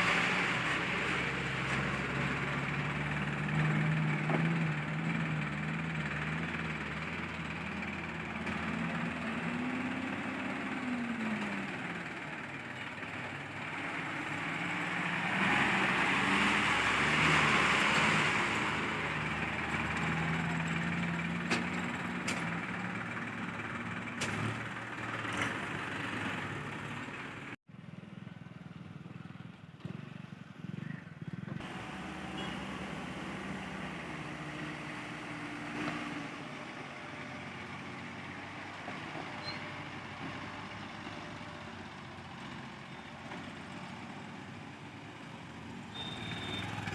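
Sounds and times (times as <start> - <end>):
diesel engine running: 0.0 - 27.6.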